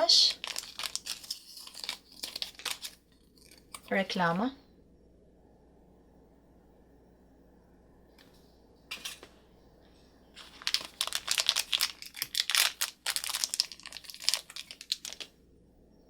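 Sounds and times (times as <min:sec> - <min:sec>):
wrapping crinkling and tearing: 0:00.0 - 0:03.9, 0:10.4 - 0:15.3.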